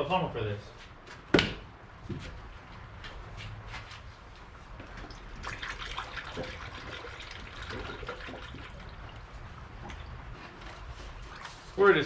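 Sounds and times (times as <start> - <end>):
liquid pouring through funnel: 4.7 - 11.8
liquid gurgling: 4.8 - 11.8.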